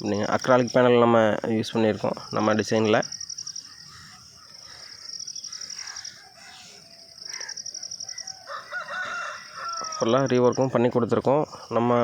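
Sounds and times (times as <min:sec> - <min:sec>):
insects chirping: 0:00.0 - 0:12.0
rooster crowing: 0:05.7 - 0:10.5.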